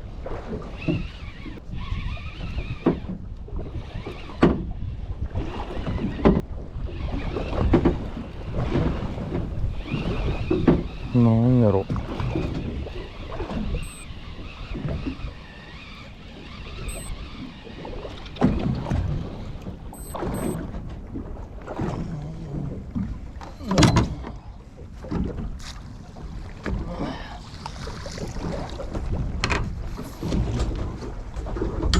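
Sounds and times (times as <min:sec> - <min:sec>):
waves slapping boat hull: 0:00.0 - 0:31.9
wind noise on microphone: 0:00.6 - 0:11.2
high electronic beeps: 0:13.8 - 0:14.1, 0:16.9 - 0:17.2, 0:20.0 - 0:20.6.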